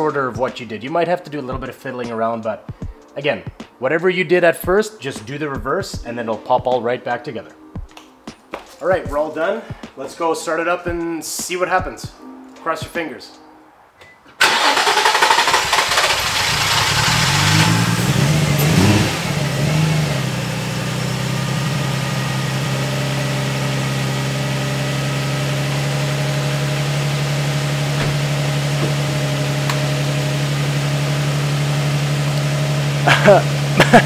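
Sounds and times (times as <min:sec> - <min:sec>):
car engine idling: 0:14.4 - 0:34.0
car engine revving unsteadily: 0:14.5 - 0:34.0.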